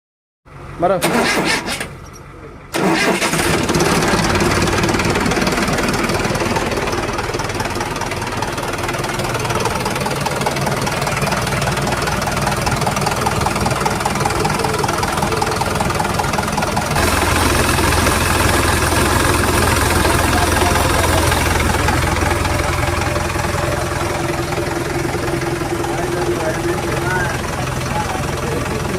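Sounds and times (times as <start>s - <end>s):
truck diesel engine running: 0.5s - 28.9s.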